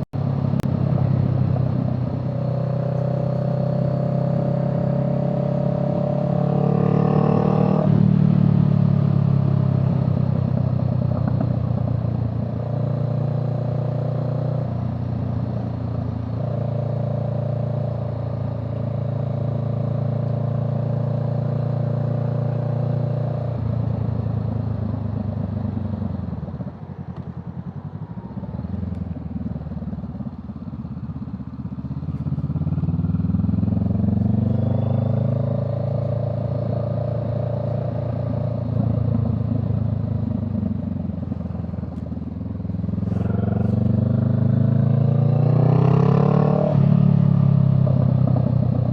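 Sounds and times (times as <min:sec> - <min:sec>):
vehicle engine revving: 0:00.2 - 0:10.2, 0:32.0 - 0:42.0, 0:42.6 - 0:48.9.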